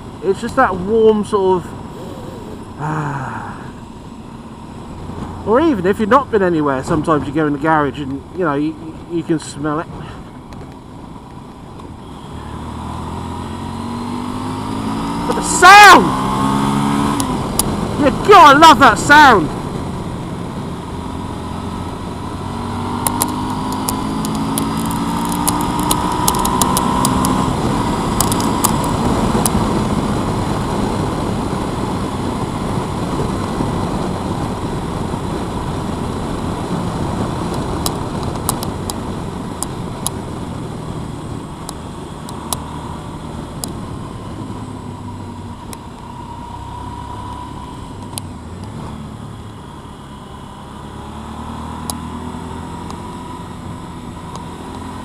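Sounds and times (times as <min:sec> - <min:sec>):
motorcycle engine accelerating: 0:00.0 - 0:07.9, 0:10.3 - 0:55.0
sharp clicks: 0:23.0 - 0:27.4, 0:28.2 - 0:29.6, 0:37.5 - 0:39.0.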